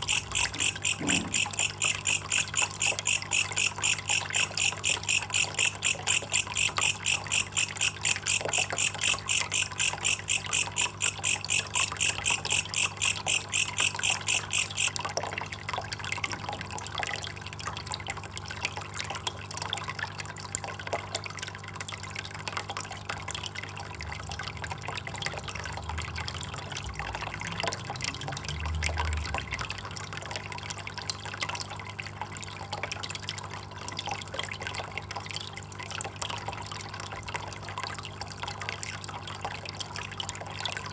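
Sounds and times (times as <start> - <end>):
katydid chirping: 0.0 - 15.0
water trickling and dripping: 0.0 - 40.9.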